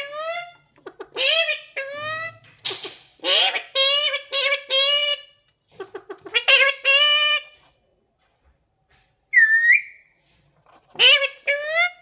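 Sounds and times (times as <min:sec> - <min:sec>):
parrot high-pitched call: 0:09.3 - 0:10.1.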